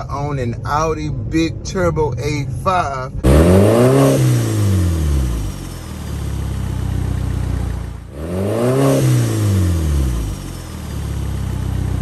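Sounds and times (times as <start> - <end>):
car engine idling: 0.0 - 12.0
car engine rev: 0.0 - 12.0.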